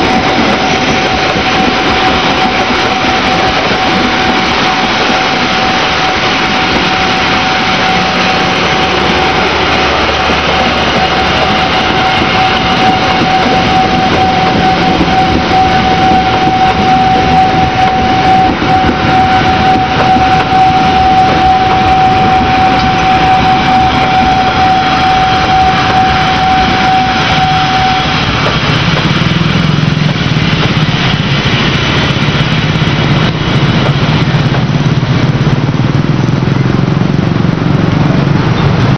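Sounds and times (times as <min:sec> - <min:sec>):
high-pitched tone: 0:00.0 - 0:29.0
low engine hum: 0:00.0 - 0:38.9
train wheels rumbling on rails: 0:00.0 - 0:38.9.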